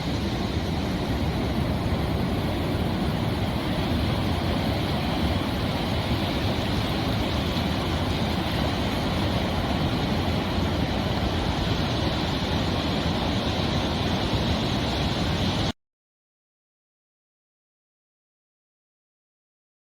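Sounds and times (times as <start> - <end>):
waves breaking: 0.0 - 15.7.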